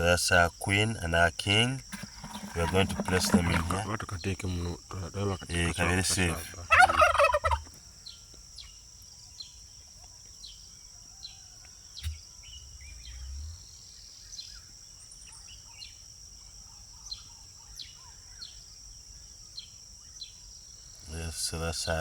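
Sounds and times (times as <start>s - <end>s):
high insect drone: 0.0s - 6.7s, 18.4s - 22.0s
birds chirping: 0.0s - 18.6s, 19.5s - 22.0s.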